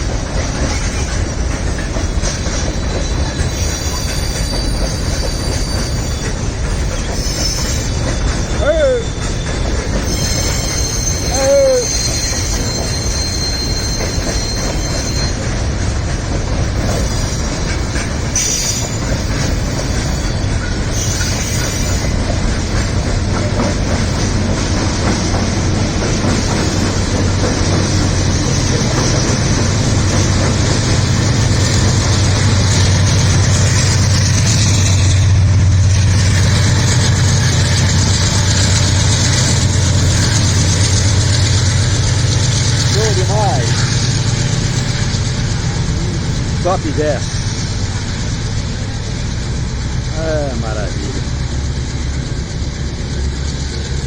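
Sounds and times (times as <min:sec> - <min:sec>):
diesel locomotive drone: 0:00.0 - 0:54.0
wheel squeal: 0:02.6 - 0:15.5, 0:16.8 - 0:22.2.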